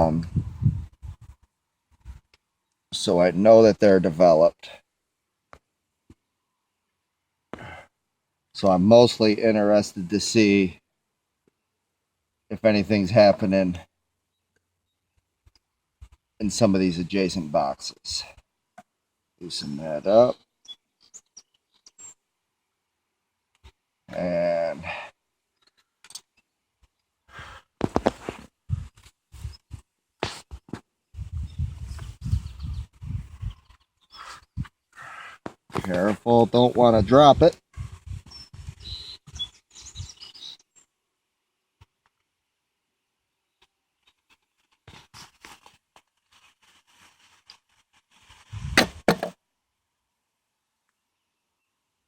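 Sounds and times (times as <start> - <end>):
rough rustle: 44.0 - 49.4
sharp knocks: 48.8 - 49.4.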